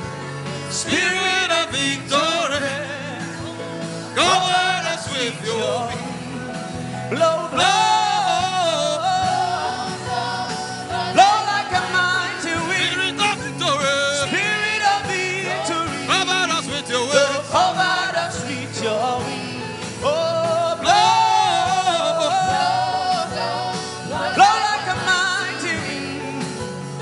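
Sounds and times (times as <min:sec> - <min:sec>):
instrumental backing: 0:00.0 - 0:27.0
person singing: 0:00.6 - 0:27.0.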